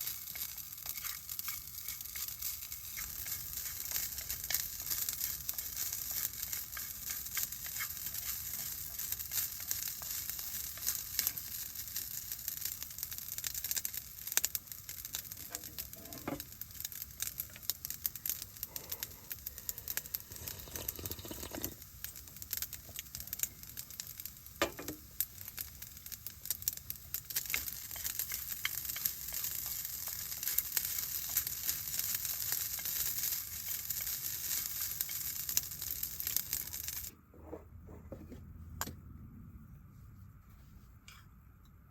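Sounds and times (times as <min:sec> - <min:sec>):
food sizzling in a frying pan: 0:00.0 - 0:37.1.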